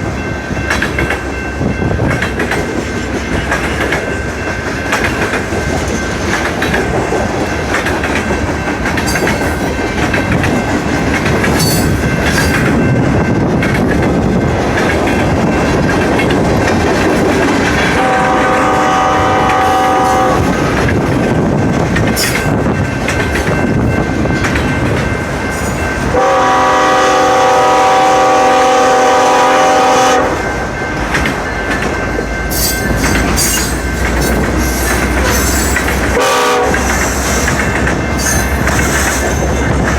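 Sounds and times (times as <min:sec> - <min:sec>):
train wheels clacking over rail joints: 0:00.6 - 0:28.0, 0:30.5 - 0:39.9
locomotive horn chords: 0:17.9 - 0:20.5, 0:26.1 - 0:30.4, 0:36.0 - 0:37.1.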